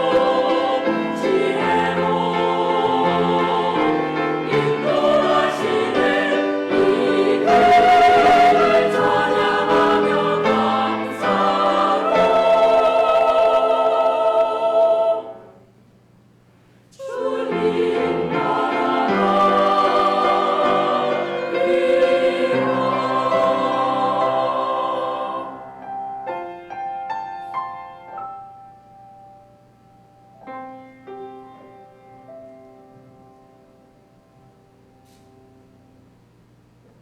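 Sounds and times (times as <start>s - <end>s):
church choir singing: 0.0s - 15.6s, 17.0s - 27.4s
piano: 0.0s - 15.8s, 17.0s - 36.3s.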